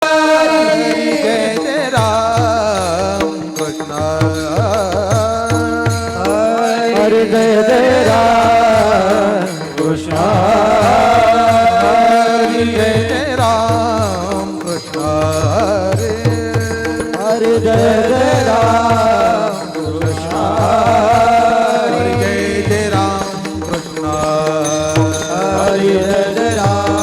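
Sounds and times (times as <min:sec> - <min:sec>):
held accompaniment tones: 0:00.0 - 0:27.0
person singing devotional song: 0:00.0 - 0:27.0
drum beat: 0:15.2 - 0:27.0.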